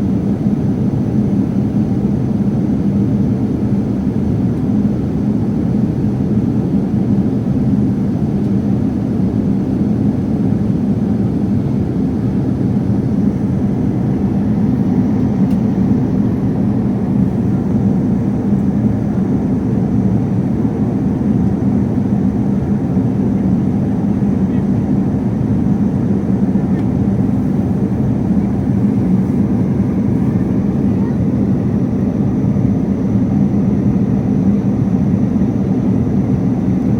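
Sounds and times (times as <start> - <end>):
jet engine and airflow rush: 0.0 - 36.9
faint constant hum: 12.0 - 36.9.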